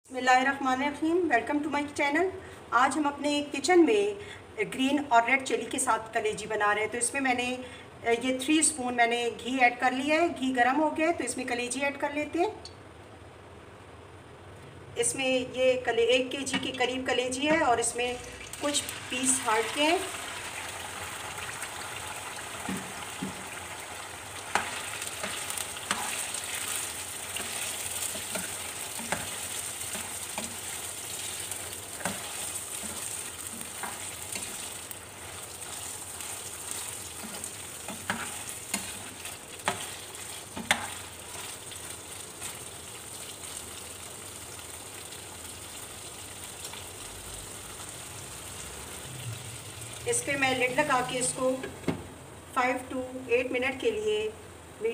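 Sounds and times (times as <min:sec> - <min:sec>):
meat sizzling in a frying pan: 0:18.0 - 0:51.4
spoon stirring and knocking pan: 0:22.6 - 0:23.6, 0:24.4 - 0:42.7.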